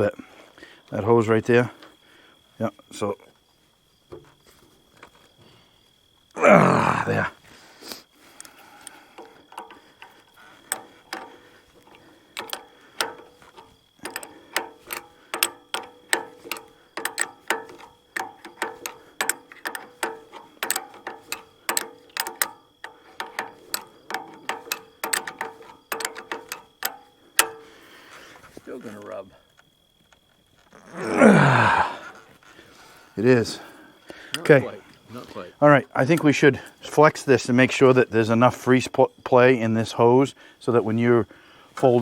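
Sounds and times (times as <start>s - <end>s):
ratchet wrench clicking: 8.4s - 27.8s.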